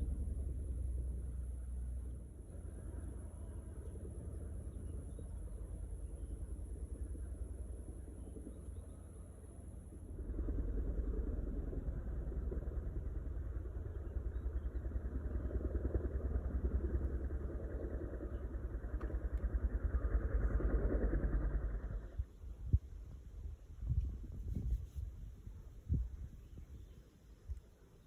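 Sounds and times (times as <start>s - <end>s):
engine running: 0.0s - 8.5s.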